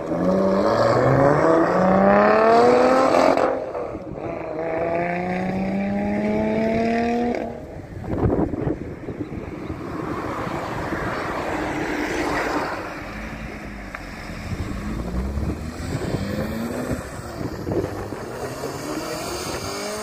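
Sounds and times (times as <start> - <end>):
sports car accelerating through gears: 0.0 - 7.6, 9.7 - 20.0
wind buffeting microphone: 5.9 - 20.0.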